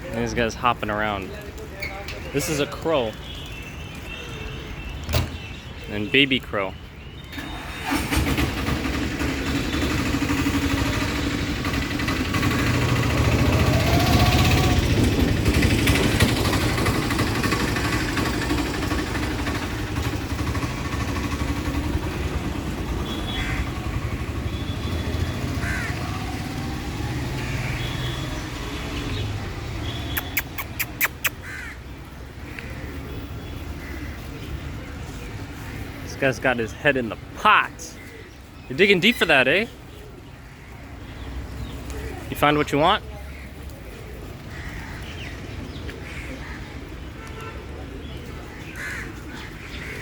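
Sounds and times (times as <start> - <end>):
road traffic rumble: 0.0 - 50.0
crow cawing: 23.3 - 23.8, 25.5 - 26.3, 31.3 - 31.9, 48.5 - 50.0
sharp clicks: 30.2 - 31.4.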